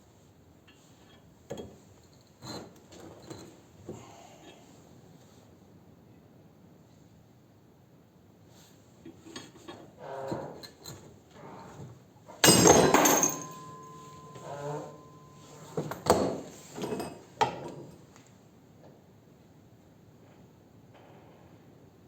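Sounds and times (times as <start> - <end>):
metal clanks and knocks: 12.4 - 17.9.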